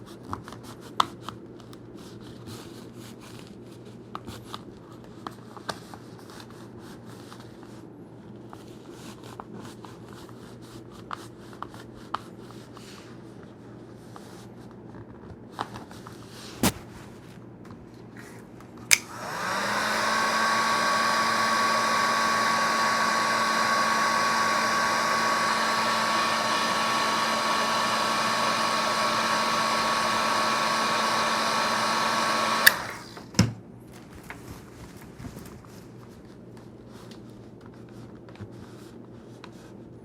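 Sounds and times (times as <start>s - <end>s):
heat gun switch click: 18.9s - 33.1s
heat gun blowing hum: 18.9s - 33.4s.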